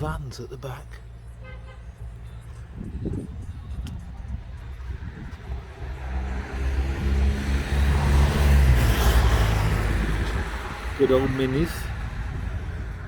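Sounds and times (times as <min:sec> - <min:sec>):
vehicle passing by: 0:04.3 - 0:13.0.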